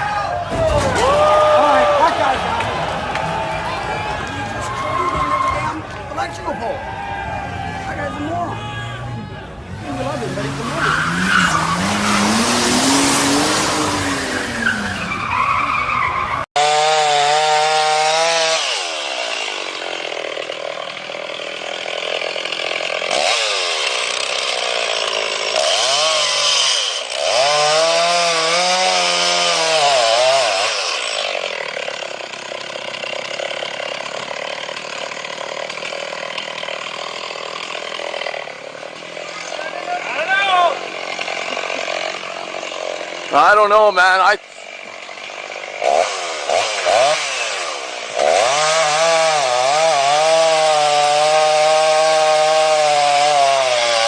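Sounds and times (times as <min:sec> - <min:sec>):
off-road vehicle engine revving: 0:01.2 - 0:19.1, 0:23.0 - 0:23.9, 0:25.4 - 0:31.4, 0:45.8 - 0:54.0.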